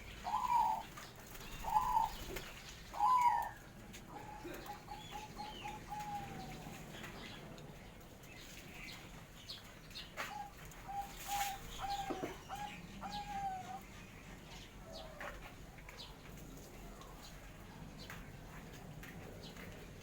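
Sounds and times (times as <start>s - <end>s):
doves cooing: 0.0s - 7.5s, 10.2s - 17.3s.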